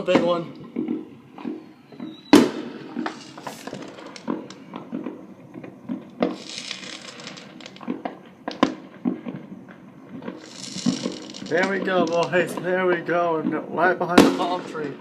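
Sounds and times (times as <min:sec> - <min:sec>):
fireworks bangs and pops: 0:00.0 - 0:15.0
fireworks crackling: 0:00.0 - 0:15.0.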